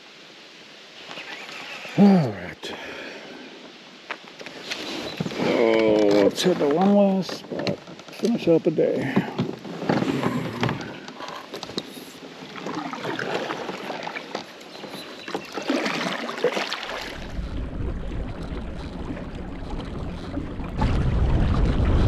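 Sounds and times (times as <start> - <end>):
water swishing along kayak hull: 0.0 - 2.0, 2.6 - 22.0
wind rumble on microphone: 17.0 - 22.0.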